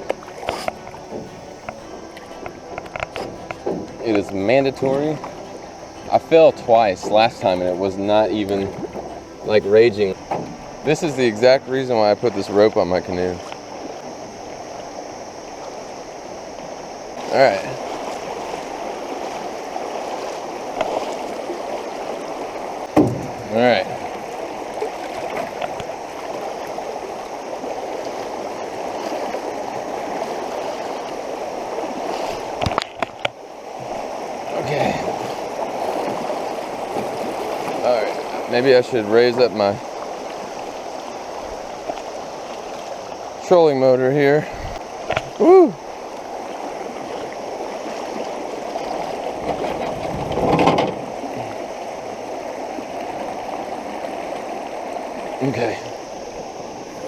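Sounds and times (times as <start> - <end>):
creek water rushing: 0.0 - 57.0
sharp knocks: 0.1 - 10.9, 22.9 - 23.5.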